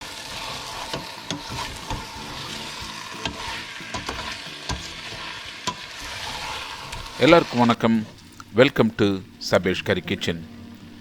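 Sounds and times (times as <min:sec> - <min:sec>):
food sizzling in a pan: 0:00.0 - 0:08.6
metal utensil knocking pan: 0:00.9 - 0:05.9.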